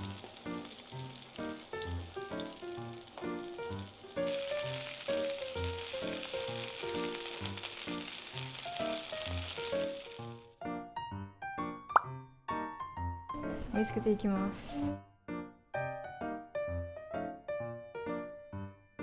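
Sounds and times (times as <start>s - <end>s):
chicken sizzling in oil: 0.0s - 10.6s.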